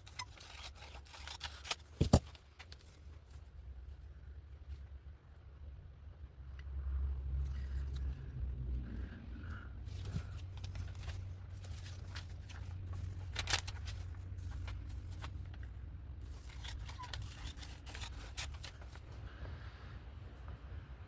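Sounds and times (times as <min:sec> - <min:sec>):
paper rustling and clicking: 0:00.0 - 0:03.4, 0:09.9 - 0:19.2.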